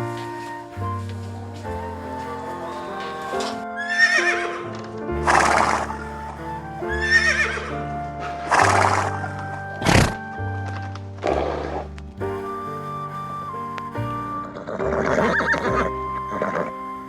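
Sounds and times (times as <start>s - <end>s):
background music: 0.0s - 17.0s
horse whinnying: 2.2s - 6.0s, 14.6s - 16.4s.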